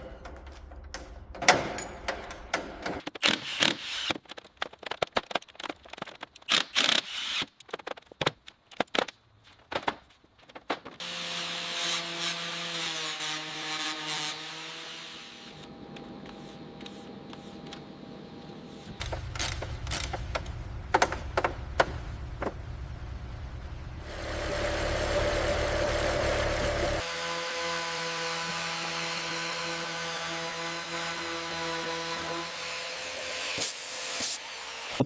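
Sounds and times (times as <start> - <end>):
low rumble: 22.0 - 25.2
hiss: 33.5 - 34.6.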